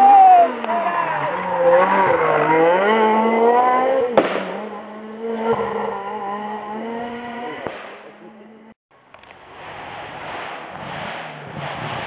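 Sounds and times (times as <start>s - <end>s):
rally car engine revving: 0.0s - 8.8s, 9.4s - 12.0s
sharp bang: 4.1s - 4.6s, 7.6s - 8.1s.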